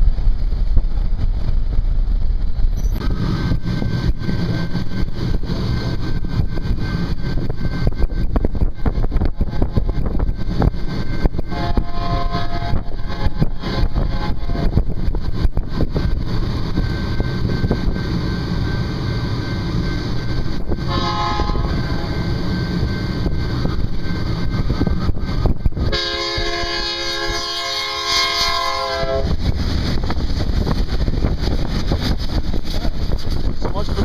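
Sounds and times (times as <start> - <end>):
low rumble of passing train: 0.0 - 34.0
locomotive horn chord: 11.5 - 14.8, 20.8 - 22.4, 25.9 - 29.3.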